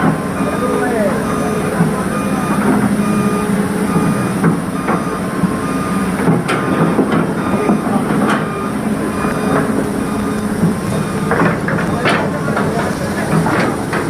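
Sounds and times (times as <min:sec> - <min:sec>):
reversing beeper: 0:00.0 - 0:13.7
heavy vehicle engine running: 0:00.0 - 0:14.0
metallic clanks and knocks: 0:10.6 - 0:14.0.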